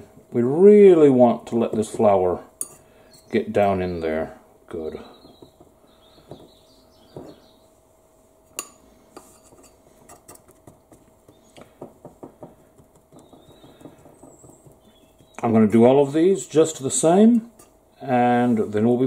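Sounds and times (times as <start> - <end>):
fork clinking on ceramic bowls: 2.6 - 2.9, 8.6 - 10.6.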